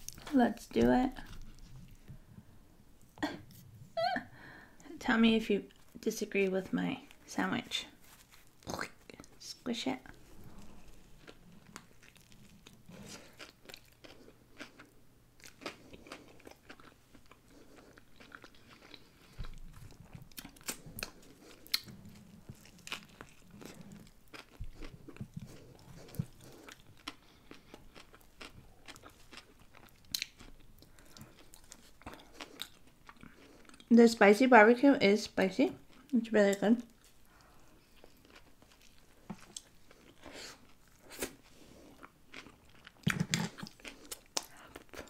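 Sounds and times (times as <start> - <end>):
biting and chewing: 10.3 - 33.9.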